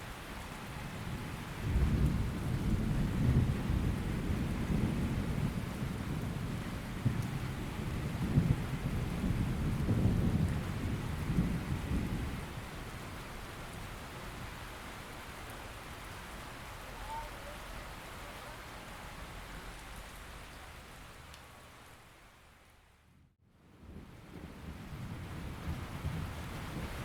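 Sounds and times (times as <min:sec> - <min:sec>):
steady rain falling: 0:00.0 - 0:27.0
rolling thunder rumble: 0:01.0 - 0:13.8, 0:23.8 - 0:27.0.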